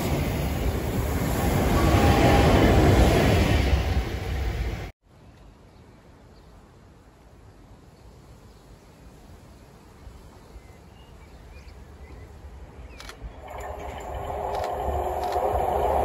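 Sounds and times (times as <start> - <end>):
train approaching: 0.0 - 4.9, 13.0 - 16.0
low rumble: 13.4 - 16.0.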